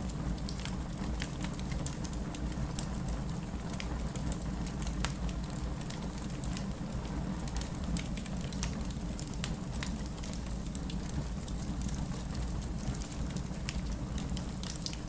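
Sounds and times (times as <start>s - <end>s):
burning logs crackling and popping: 0.1s - 15.0s.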